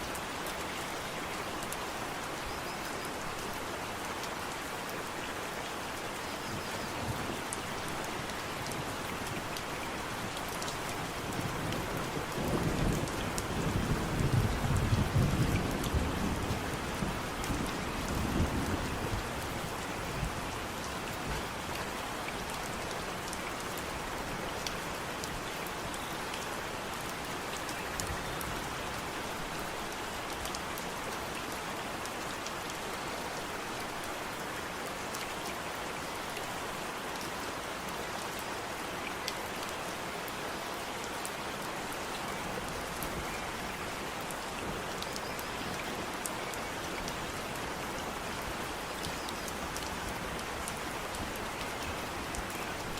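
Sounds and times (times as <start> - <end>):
steady rain hiss: 0.0 - 52.9.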